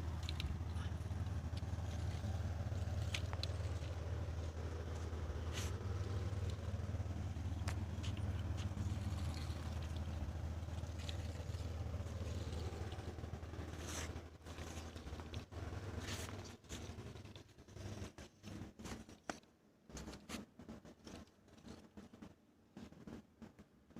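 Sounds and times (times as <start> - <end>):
engine rumbling: 0.0 - 22.3.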